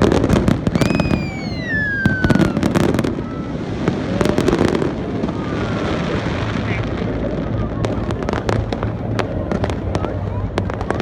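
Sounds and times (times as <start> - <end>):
fireworks bangs and crackles: 0.0 - 11.0
falling firework whistle: 0.6 - 3.7.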